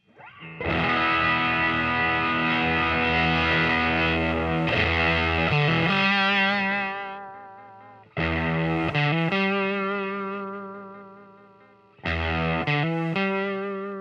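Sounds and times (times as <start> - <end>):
distorted electric guitar chords: 0.0 - 14.0.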